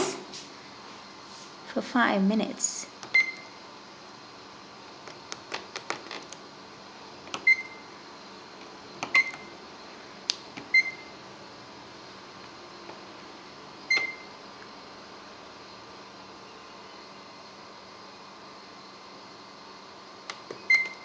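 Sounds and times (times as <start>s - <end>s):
microwave keypad beeps: 3.1s - 3.6s, 7.4s - 7.9s, 9.1s - 9.5s, 10.7s - 11.2s, 13.9s - 14.3s, 20.6s - 21.0s.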